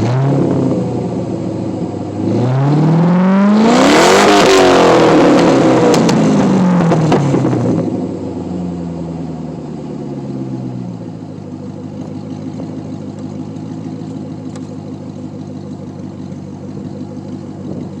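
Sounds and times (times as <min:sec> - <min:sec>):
car exhaust popping and idling: 0:04.6 - 0:18.0.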